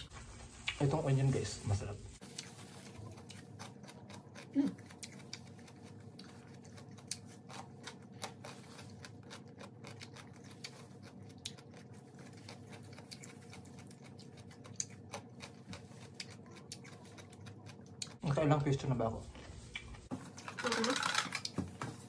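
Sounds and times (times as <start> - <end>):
chewing crunchy raw vegetables: 2.2 - 18.4.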